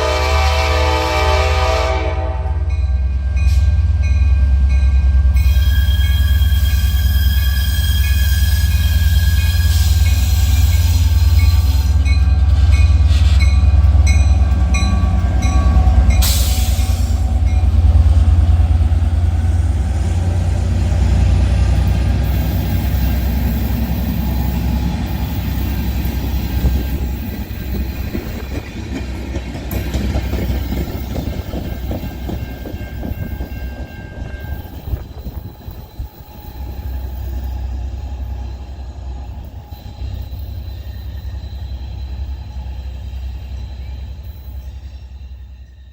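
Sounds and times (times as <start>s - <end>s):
diesel locomotive rumble: 0.0s - 45.8s
train cars clattering over rails: 21.6s - 36.4s.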